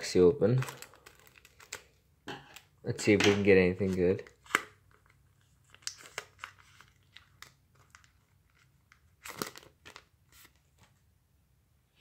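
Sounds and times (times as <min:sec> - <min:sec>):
foil wrapper crinkling and tearing: 0:00.5 - 0:02.0, 0:03.7 - 0:10.8.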